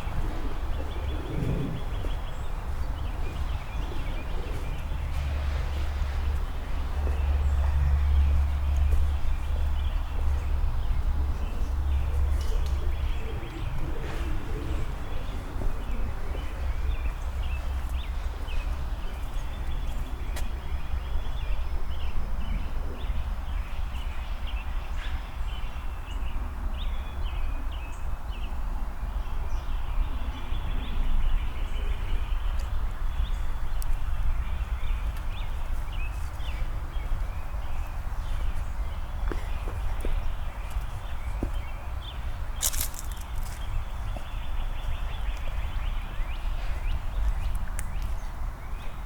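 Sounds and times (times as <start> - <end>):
low rumble: 0.0 - 17.2
songbirds chirping and singing: 0.0 - 49.0
footsteps on pavement: 0.1 - 21.3, 32.4 - 49.0.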